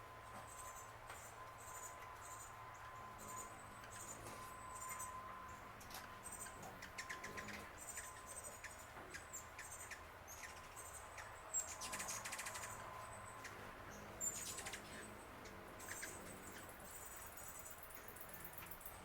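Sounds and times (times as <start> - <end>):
small birds chirping: 6.2 - 19.0.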